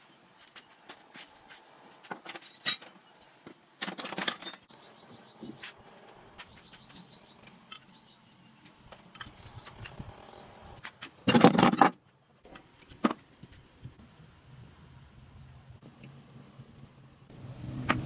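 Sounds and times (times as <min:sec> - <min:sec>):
metal tools clinking: 0:02.2 - 0:03.0, 0:03.8 - 0:04.7.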